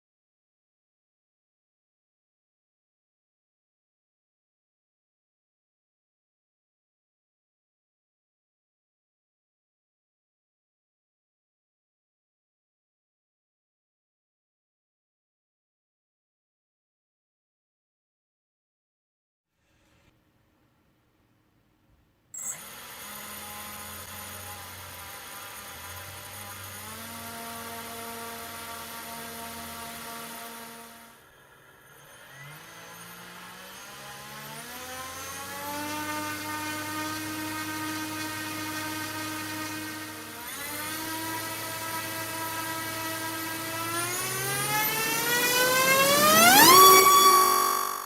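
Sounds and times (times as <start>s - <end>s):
small electric motor whining: 22.4s - 48.0s.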